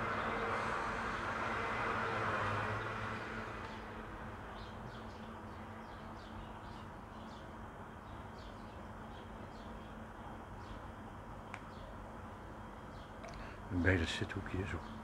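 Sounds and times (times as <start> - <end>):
steady low background noise: 0.0 - 15.0
small birds chirping: 4.5 - 12.0, 12.7 - 15.0.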